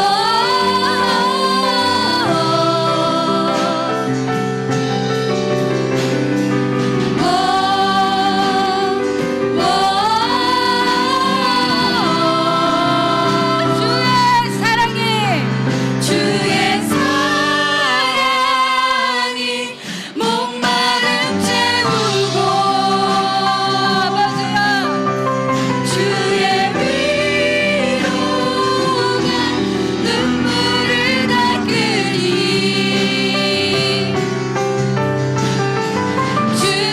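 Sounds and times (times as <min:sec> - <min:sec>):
voices singing slow song: 0:00.0 - 0:04.8, 0:06.8 - 0:34.8, 0:36.2 - 0:36.9
band accompaniment: 0:00.0 - 0:36.9.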